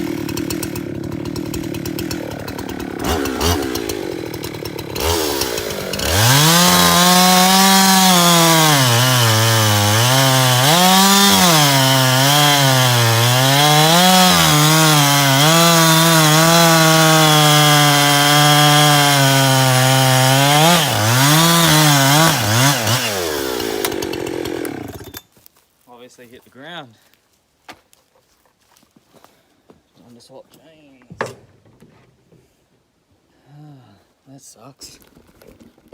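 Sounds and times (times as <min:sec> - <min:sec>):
chainsaw cutting wood: 0:00.0 - 0:25.3.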